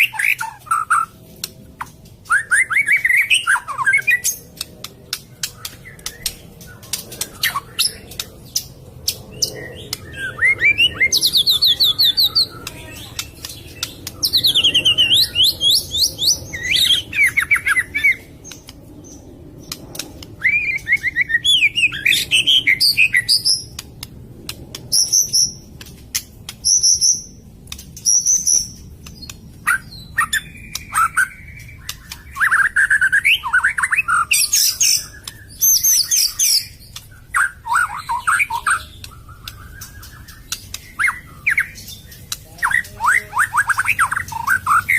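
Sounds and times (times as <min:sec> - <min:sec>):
bird singing whistled phrases: 0:02.3 - 0:04.3, 0:20.4 - 0:23.7.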